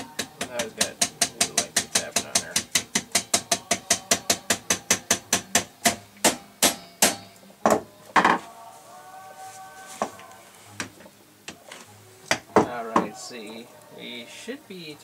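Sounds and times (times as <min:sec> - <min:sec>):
hammer tapping metal: 0:00.0 - 0:08.4.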